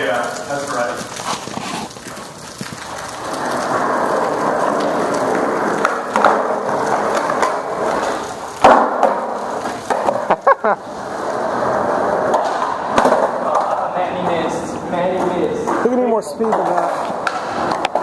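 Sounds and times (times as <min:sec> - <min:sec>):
skateboard wheels rolling on pavement: 0:00.0 - 0:18.0
skateboard clack: 0:00.2 - 0:18.0.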